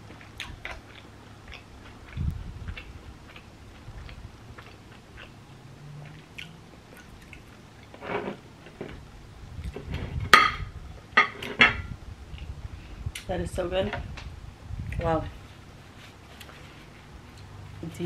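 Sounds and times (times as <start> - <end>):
person chewing bread: 0.0 - 8.0, 14.8 - 17.5.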